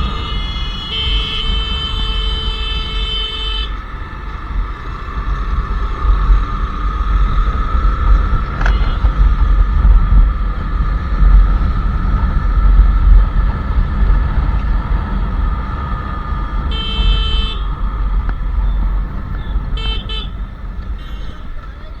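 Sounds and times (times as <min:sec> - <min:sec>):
vehicle horn: 0:00.0 - 0:03.9, 0:08.5 - 0:09.4, 0:16.6 - 0:18.2, 0:18.8 - 0:21.7
motorcycle engine running: 0:00.0 - 0:22.0.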